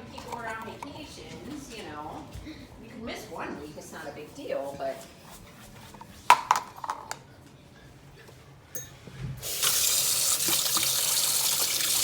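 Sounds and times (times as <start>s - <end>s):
dishes clinking: 8.8s - 9.5s
tap water running into sink: 9.4s - 12.0s.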